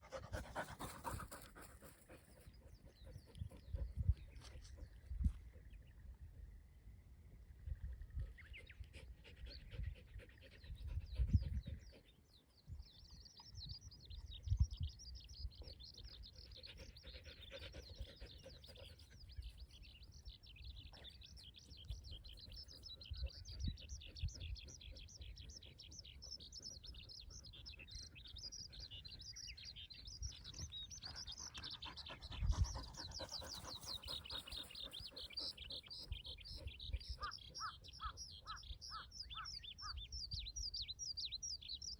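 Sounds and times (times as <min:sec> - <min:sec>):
dog panting: 0:00.0 - 0:04.0, 0:16.0 - 0:19.7, 0:31.0 - 0:36.8
birds chirping and trilling: 0:00.0 - 0:41.9.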